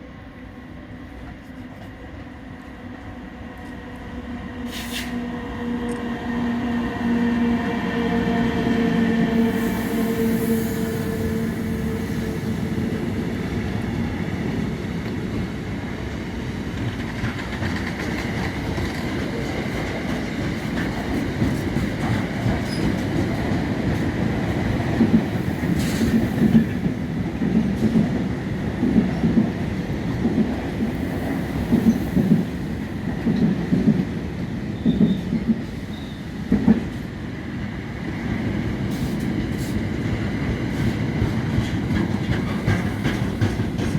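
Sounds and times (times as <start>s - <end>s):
train rumbling on rails: 0.0s - 43.9s
wheels clacking over rail joints: 40.8s - 43.9s.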